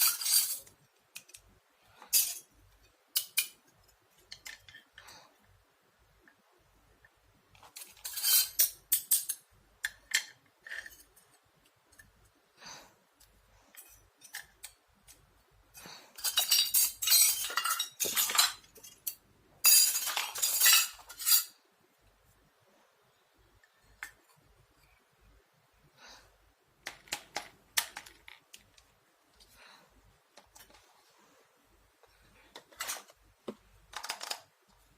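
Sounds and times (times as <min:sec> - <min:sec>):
toy dishes clinking and rattling: 0:00.0 - 0:01.4, 0:02.0 - 0:05.1, 0:07.6 - 0:12.2, 0:16.1 - 0:21.6, 0:33.9 - 0:34.5.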